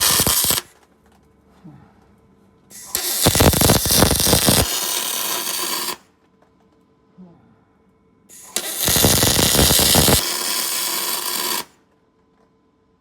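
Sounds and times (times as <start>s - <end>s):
welding arc crackling and hissing: 0.0s - 0.7s, 2.8s - 6.0s, 8.3s - 11.7s.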